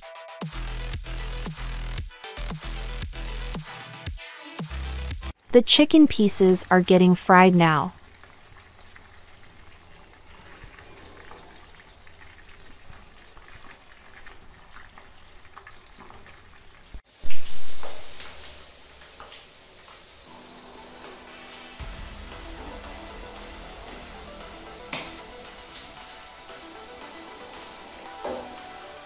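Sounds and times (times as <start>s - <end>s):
chicken deep-frying in oil: 6.1s - 29.0s
loud rush of noise: 21.8s - 27.4s.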